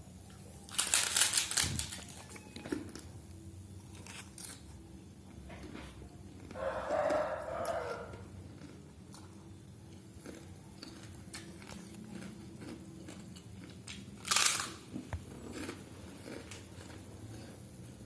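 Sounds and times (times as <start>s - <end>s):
person chewing noodles: 3.8s - 18.0s.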